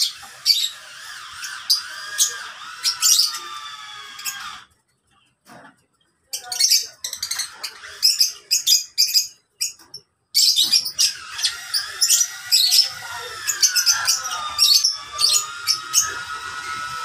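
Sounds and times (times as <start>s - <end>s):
lovebirds chirping and squawking: 0.0s - 17.0s.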